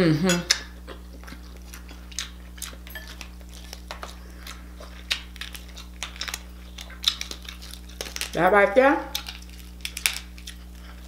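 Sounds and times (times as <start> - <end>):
faint low hum: 0.0 - 11.0
chewing and lip-smacking: 0.3 - 11.0
crab shell cracking: 2.1 - 8.4, 9.1 - 11.0.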